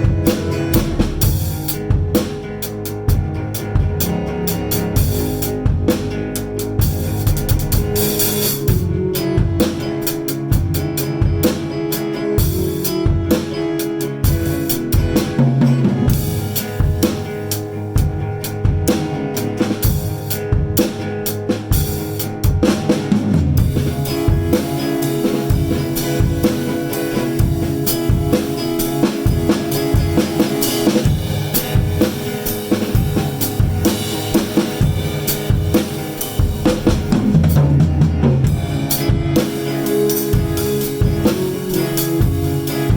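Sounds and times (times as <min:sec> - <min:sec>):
keyboard notes: 0:00.0 - 0:20.8
drum kit beat: 0:00.0 - 0:42.9
guitar notes: 0:00.0 - 0:42.9.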